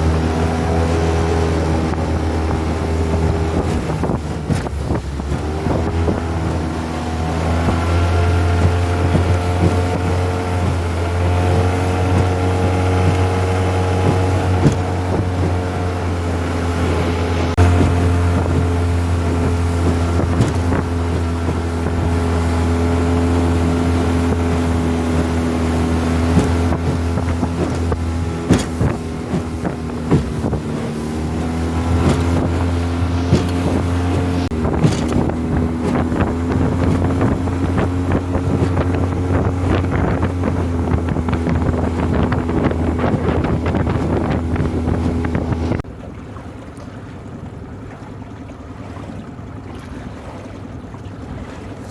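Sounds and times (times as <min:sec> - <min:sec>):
wind on microphone: 0:00.0 - 0:45.9
outboard motor running: 0:00.0 - 0:51.9
sharp knocks: 0:14.0 - 0:15.6, 0:26.2 - 0:37.9.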